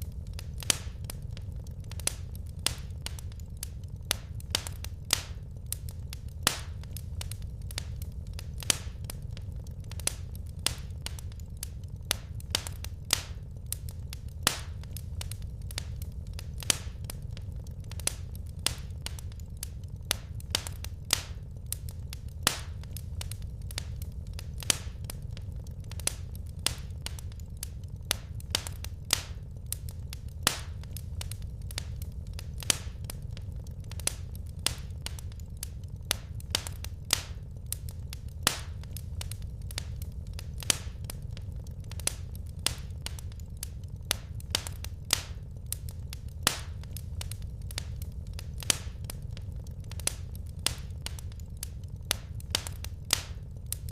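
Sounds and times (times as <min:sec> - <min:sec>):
low rumble: 0:00.0 - 0:53.8
wood fire crackling: 0:00.0 - 0:53.9.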